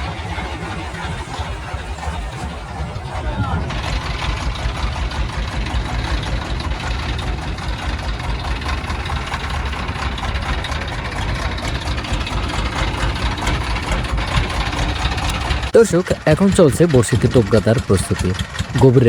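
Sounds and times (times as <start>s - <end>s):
boat engine idling: 0.0s - 19.0s.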